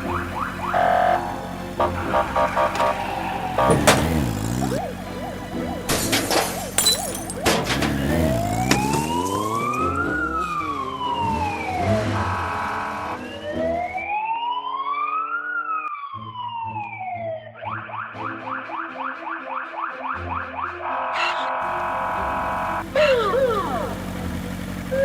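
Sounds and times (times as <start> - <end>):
police siren wailing: 0.0 - 7.3, 8.1 - 24.1
background music: 0.0 - 11.0, 16.1 - 23.8.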